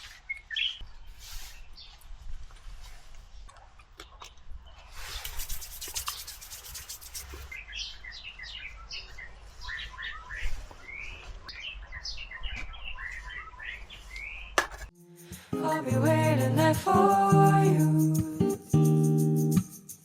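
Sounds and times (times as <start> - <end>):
birds chirping: 4.6 - 14.9
scratchy rubbing: 5.0 - 7.5.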